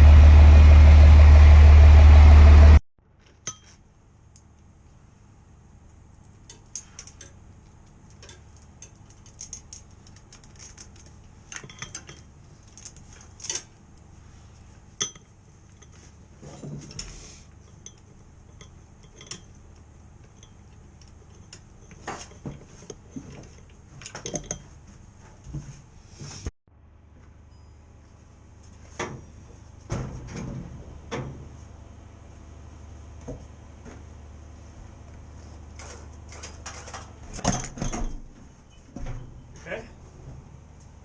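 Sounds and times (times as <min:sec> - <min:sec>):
low hum: 0:00.0 - 0:02.8
metal tools clinking: 0:06.5 - 0:13.7, 0:17.0 - 0:19.6.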